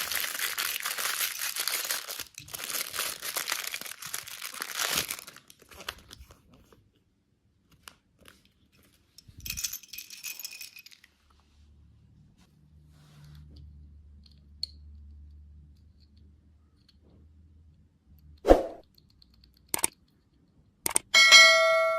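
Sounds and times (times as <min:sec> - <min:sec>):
plastic wrapper crinkling: 0:00.0 - 0:06.4
small clicks: 0:18.9 - 0:21.1.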